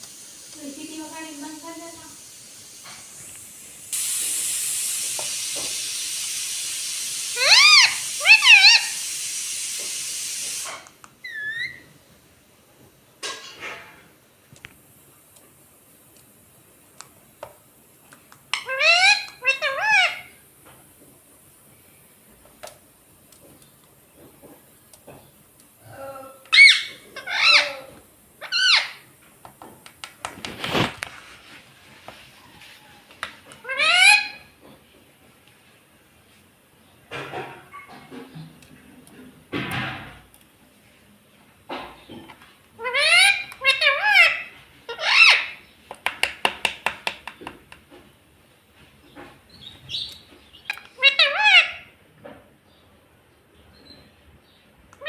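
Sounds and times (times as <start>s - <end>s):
parakeet squawking: 7.4s - 9.0s, 18.6s - 20.3s, 26.5s - 29.0s, 33.6s - 34.5s, 42.8s - 45.6s, 50.6s - 51.9s.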